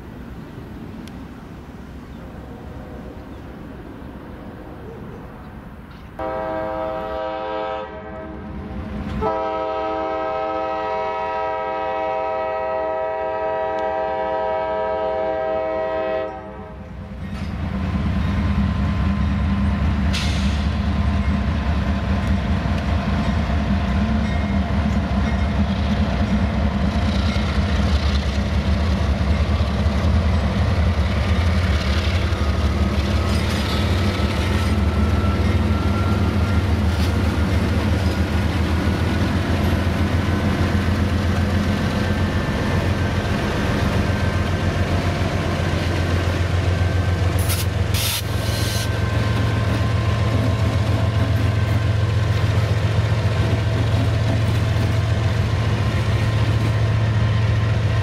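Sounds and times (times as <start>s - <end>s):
train rumbling past: 0.0s - 58.0s
locomotive air horn: 6.2s - 8.5s, 9.2s - 16.8s, 47.4s - 49.1s.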